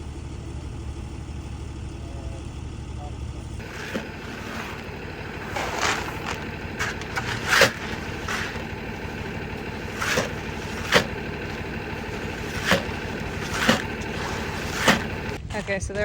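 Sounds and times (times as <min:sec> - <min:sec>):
machine running: 0:03.6 - 0:15.4
sharp scrapes and knocks: 0:03.6 - 0:15.4.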